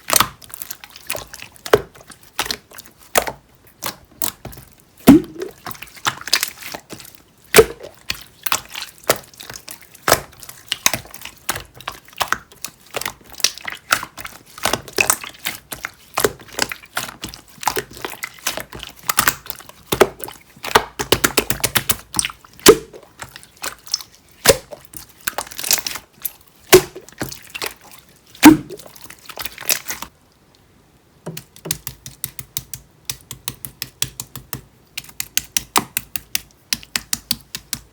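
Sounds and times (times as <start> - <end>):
slime air-bubble pop: 5.1 - 5.6, 7.6 - 7.9, 28.4 - 28.8
slime clicking and popping: 5.1 - 5.8, 7.5 - 9.2, 31.4 - 37.9.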